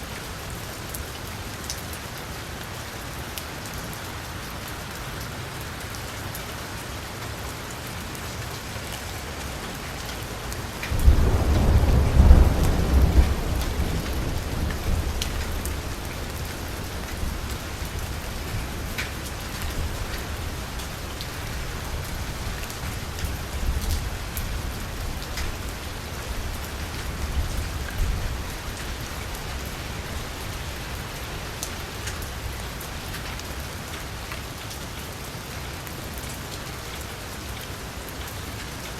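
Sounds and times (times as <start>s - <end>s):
heavy rain on car roof: 0.0s - 38.9s
thunder clap and rumble: 10.6s - 28.9s.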